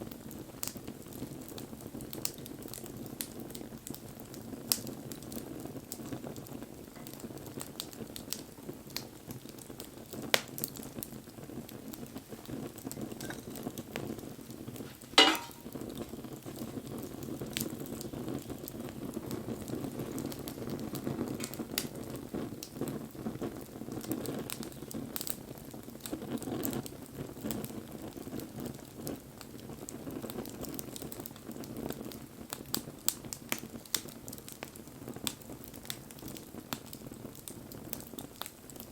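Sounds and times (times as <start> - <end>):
bonfire hissing and crackling: 0.0 - 38.9
loud sharp pop: 15.0 - 15.8.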